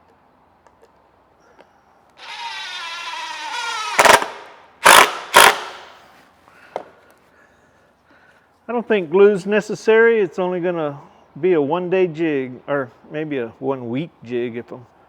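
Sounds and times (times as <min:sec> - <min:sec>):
power driver motor whine: 0:02.2 - 0:05.8
screw driven into wood: 0:02.2 - 0:06.0.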